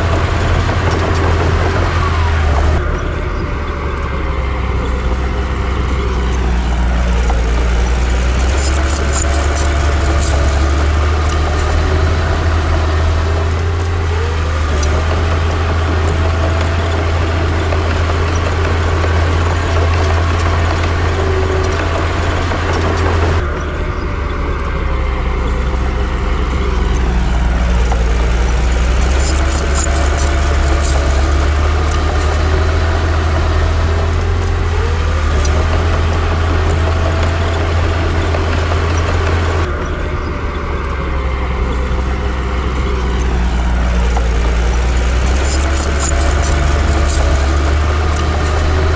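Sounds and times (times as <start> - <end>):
heavy diesel engine humming: 0.0 - 48.9
sharp metallic clicks: 0.0 - 48.9.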